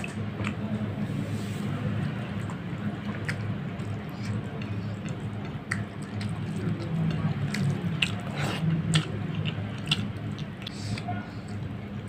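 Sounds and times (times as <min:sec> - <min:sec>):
wet chewing: 0:00.0 - 0:00.9, 0:02.0 - 0:12.0
steady low hum: 0:00.0 - 0:12.0
lip-smacking clicks: 0:02.4 - 0:08.2.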